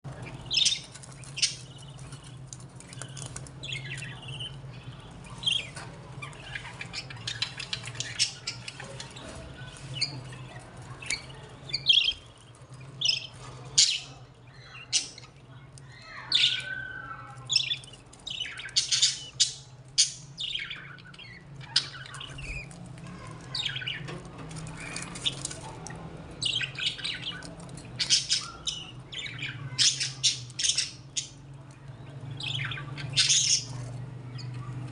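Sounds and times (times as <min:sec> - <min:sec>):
budgerigars chattering: 0:00.2 - 0:12.3, 0:16.0 - 0:24.0, 0:24.7 - 0:31.4.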